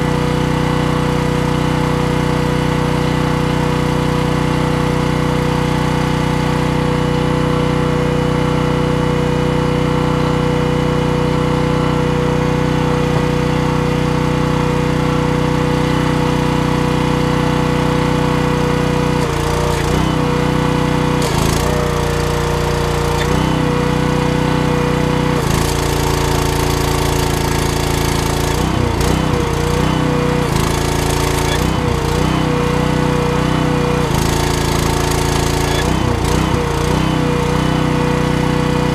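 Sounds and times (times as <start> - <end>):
welding machine humming: 15.7 - 38.5.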